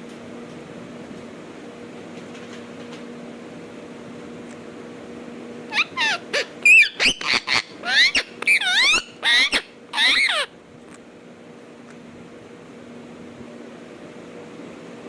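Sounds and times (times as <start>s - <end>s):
steady low hum: 0.0s - 15.0s
parrot calling: 5.7s - 10.5s.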